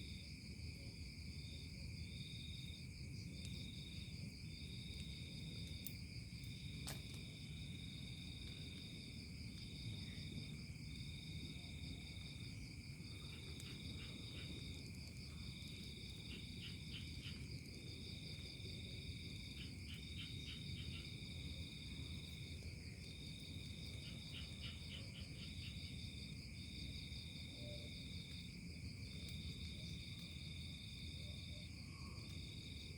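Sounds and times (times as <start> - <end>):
crickets trilling: 0.0 - 32.9.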